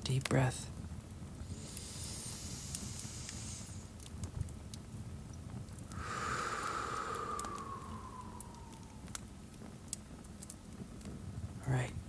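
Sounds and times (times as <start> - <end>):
fireplace crackling: 0.0 - 12.0
breathy exhale through mouth: 1.5 - 3.9, 5.9 - 9.0
person inhaling through nose: 1.5 - 3.9, 5.9 - 9.0.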